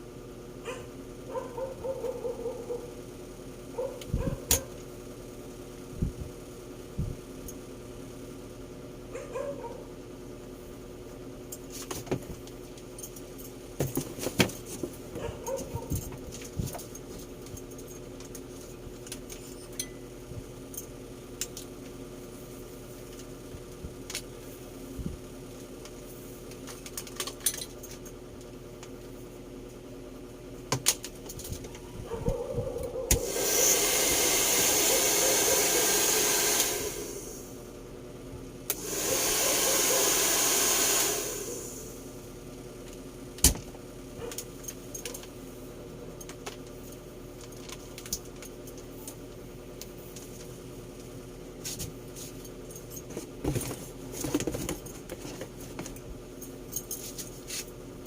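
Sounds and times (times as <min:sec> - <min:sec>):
steady low hum: 0:00.0 - 0:39.4
dog yips: 0:00.7 - 0:02.9, 0:03.8 - 0:04.7, 0:09.1 - 0:09.9, 0:15.2 - 0:16.0.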